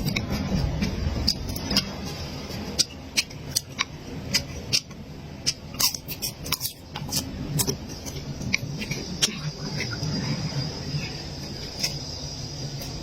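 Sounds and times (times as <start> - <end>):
food crunching while chewed: 2.8 - 10.0.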